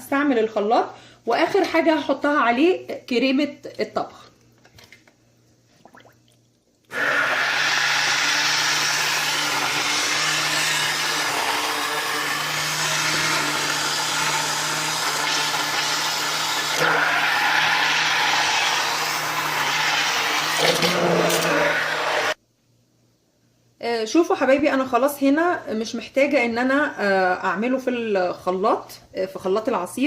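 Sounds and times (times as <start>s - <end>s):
electric blender running: 6.9s - 22.4s.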